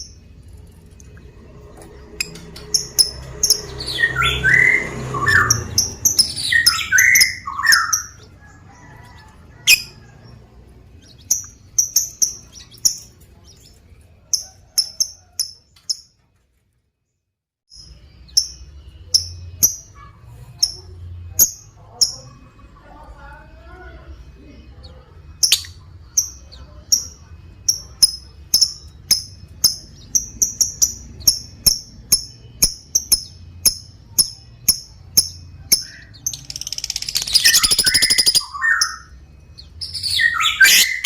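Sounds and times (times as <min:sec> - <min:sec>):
lovebird chirping: 0:01.8 - 0:16.2, 0:24.1 - 0:41.0.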